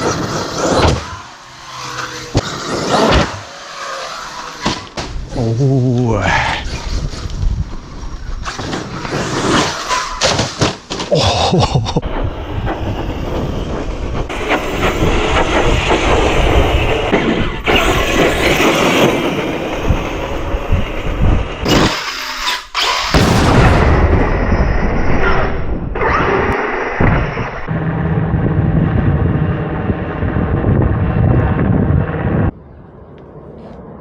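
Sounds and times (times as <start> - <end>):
electric rc car motor whine: 0.0 - 5.0, 17.6 - 23.1
tyre and chassis noise: 0.0 - 6.0, 6.6 - 32.6.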